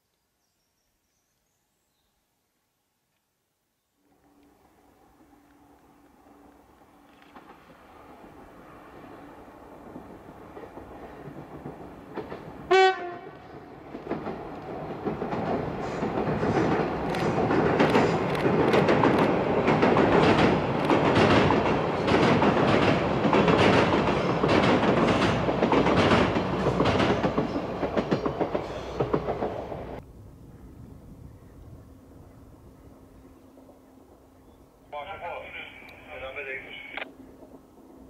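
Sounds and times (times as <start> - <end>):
train rumbling on bridge: 4.2 - 38.0
wheels clacking over rail joints: 9.8 - 30.0
train horn blast: 12.7 - 13.6.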